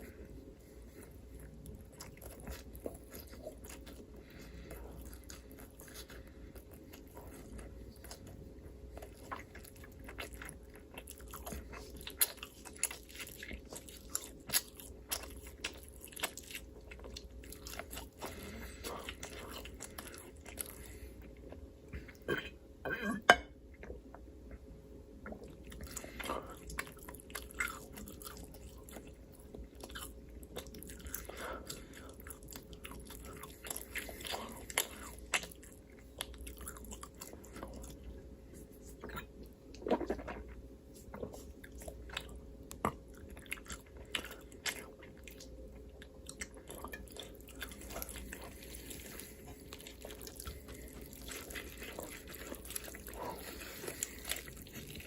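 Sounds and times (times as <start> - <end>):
chewing and biting: 1.0 - 22.3, 25.2 - 55.0.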